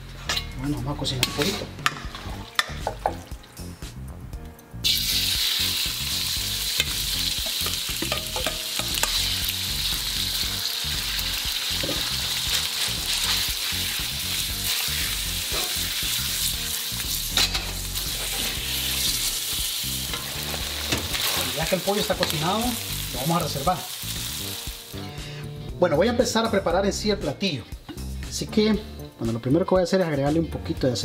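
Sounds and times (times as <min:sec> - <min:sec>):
chicken sizzling in hot oil: 0:04.8 - 0:25.0
metal spoon clicking in wok: 0:07.5 - 0:09.2.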